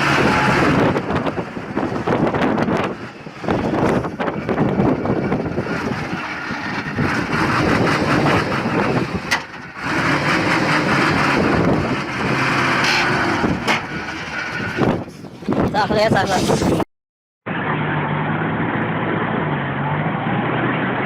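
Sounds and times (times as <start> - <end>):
vehicle engine running: 0.0 - 15.8.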